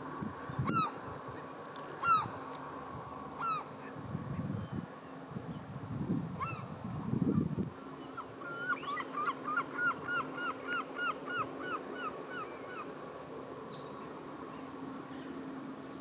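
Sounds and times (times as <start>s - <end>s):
bird calling arching notes: 0.5s - 2.5s, 3.3s - 4.0s, 6.2s - 16.0s.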